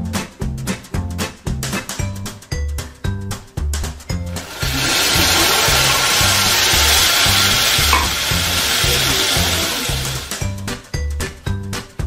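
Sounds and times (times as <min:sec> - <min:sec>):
background music with steady beat: 0:00.0 - 0:12.0
water sizzling in hot pan: 0:04.4 - 0:10.5.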